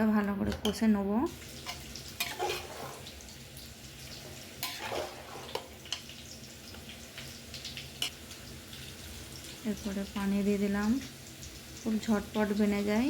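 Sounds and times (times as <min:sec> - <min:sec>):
food stir-frying in a pot: 0:00.0 - 0:13.0
spoon scraping and knocking pot: 0:01.6 - 0:03.1, 0:04.6 - 0:06.1.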